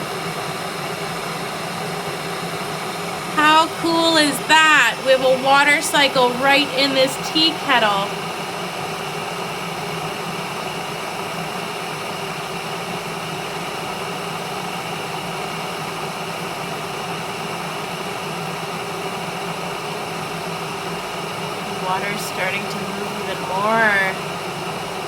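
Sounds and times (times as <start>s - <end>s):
electric kettle hissing: 0.0s - 25.0s
faint hum: 3.4s - 8.3s, 21.5s - 25.0s.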